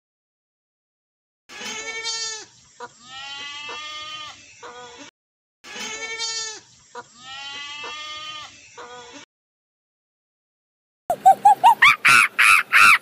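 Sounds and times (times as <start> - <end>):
goat bleating: 1.5 - 5.1, 5.7 - 9.3.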